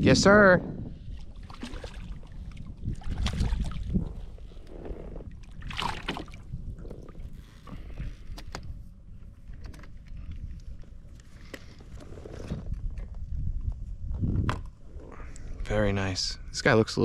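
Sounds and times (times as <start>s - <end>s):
short splashes: 1.4s - 3.9s, 5.4s - 6.5s
knocks and rustles against hull: 1.5s - 14.8s.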